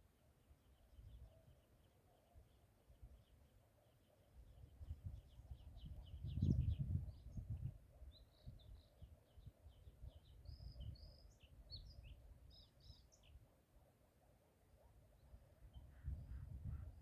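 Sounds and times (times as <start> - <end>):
small birds chirping: 0.6 - 13.4.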